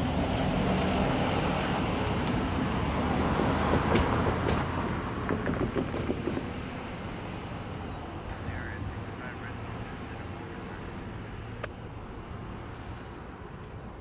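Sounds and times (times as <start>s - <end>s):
train rumbling: 0.0s - 14.0s.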